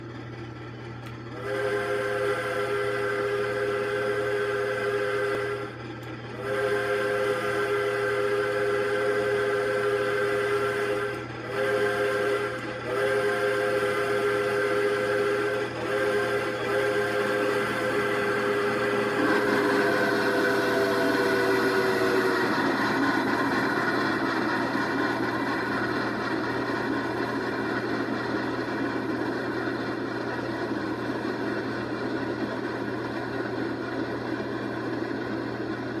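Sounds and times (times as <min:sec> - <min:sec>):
passenger train rumbling on rails: 0:00.0 - 0:36.0
steam locomotive whistle blasts: 0:01.3 - 0:33.1.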